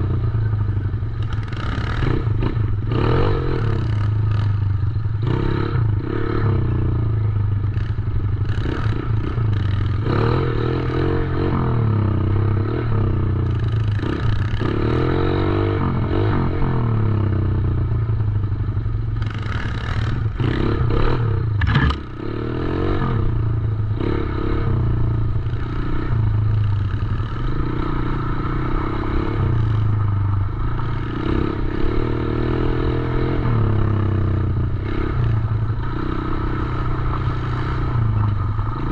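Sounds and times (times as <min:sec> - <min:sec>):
dirt bike engine revving: 0:19.2 - 0:38.9.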